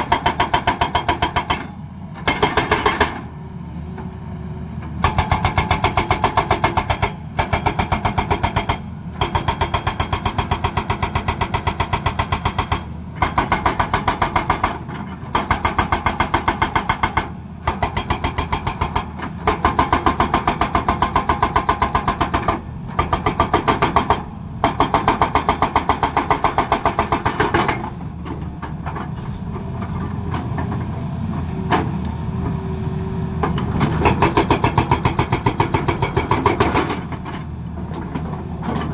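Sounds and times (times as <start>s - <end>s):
hydraulic breaker hammering: 0.0s - 3.2s.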